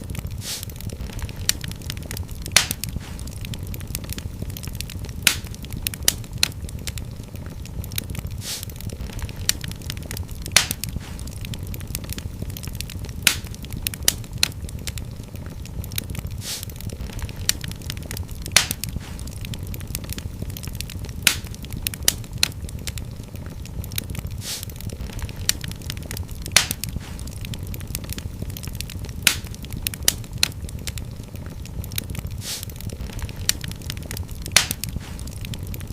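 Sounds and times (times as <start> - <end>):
fire hissing: 0.0 - 35.9
wood fire crackling: 0.0 - 35.9.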